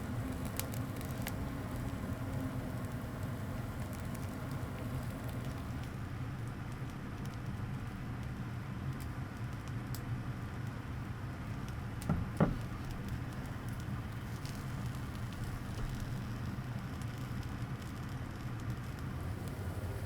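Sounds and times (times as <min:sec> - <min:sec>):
low steady hum: 0:00.0 - 0:08.3, 0:18.6 - 0:20.0
charcoal fire crackling: 0:00.0 - 0:20.0
knocks: 0:12.1 - 0:12.7.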